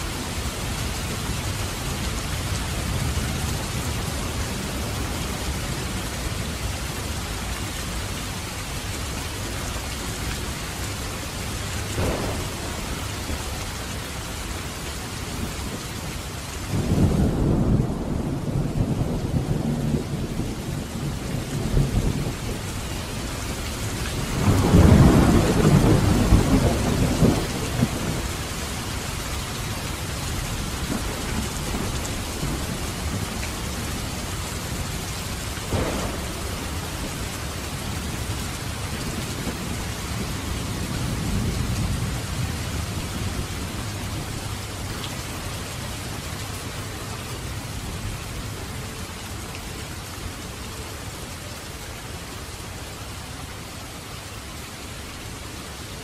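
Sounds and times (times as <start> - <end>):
rain on a roof: 0.0 - 56.0
sharp thunder crack: 12.0 - 13.2, 35.6 - 38.0
thunder rolling: 12.0 - 13.5, 16.8 - 28.4, 35.6 - 43.4.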